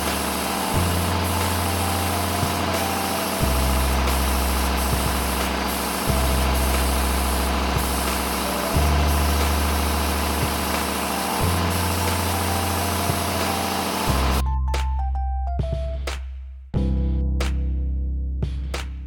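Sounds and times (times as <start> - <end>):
motor hum: 0.0 - 14.4.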